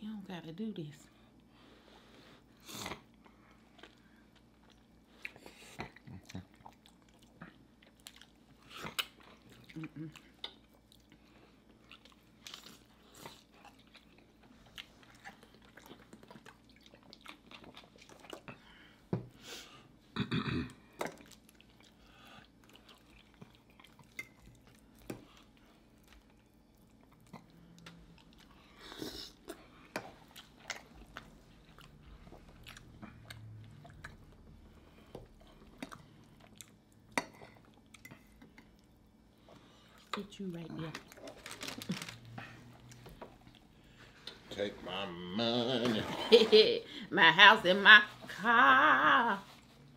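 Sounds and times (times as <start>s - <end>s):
close chewing and biting: 2.8s - 18.6s, 21.1s - 38.1s.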